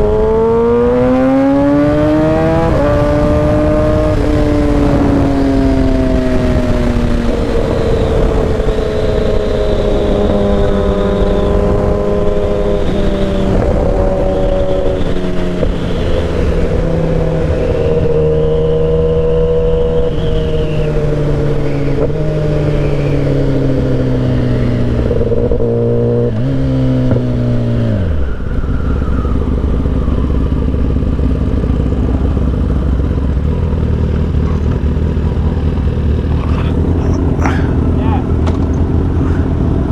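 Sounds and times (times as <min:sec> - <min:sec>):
wind noise: 0:00.0 - 0:33.5
motorcycle engine slowing to idle: 0:28.2 - 0:36.5.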